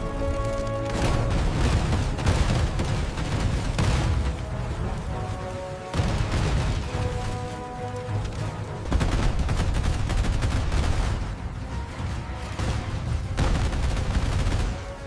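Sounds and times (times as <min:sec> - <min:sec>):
soundtrack music with low rumble: 0:00.0 - 0:15.0
machine-gun fire effects: 0:08.9 - 0:11.3, 0:12.6 - 0:15.0.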